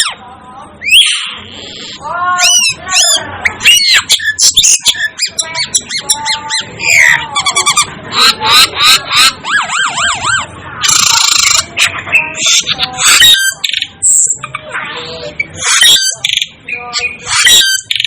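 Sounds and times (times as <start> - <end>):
bird warbling phrase: 0.8 - 18.0.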